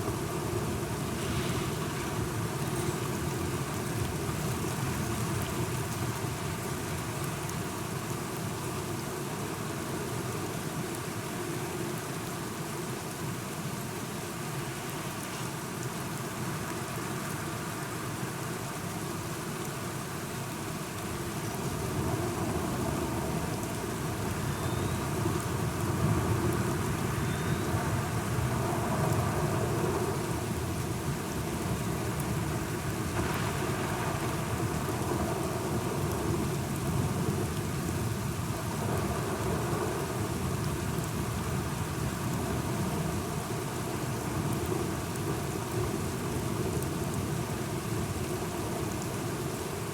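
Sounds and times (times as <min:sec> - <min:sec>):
steady rain: 0:00.0 - 0:49.9
rolling thunder: 0:32.6 - 0:37.5.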